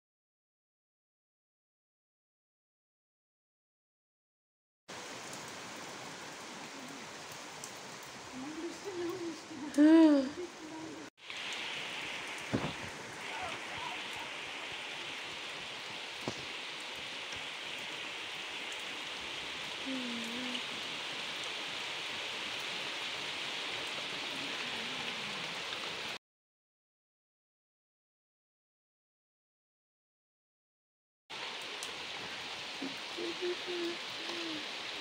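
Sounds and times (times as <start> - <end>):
rain hissing on concrete: 4.9 - 26.2, 31.3 - 35.0.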